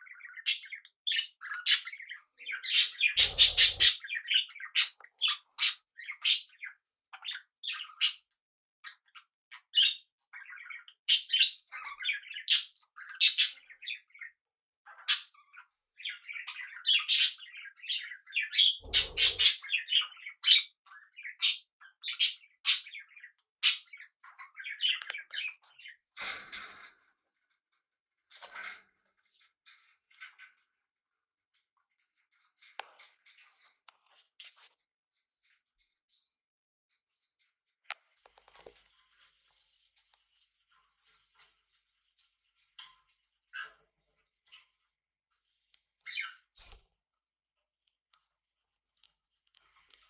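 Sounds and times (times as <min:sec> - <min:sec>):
budgies and cockatiels chirping: 0:00.0 - 0:26.9, 0:28.3 - 0:30.6, 0:38.4 - 0:46.8.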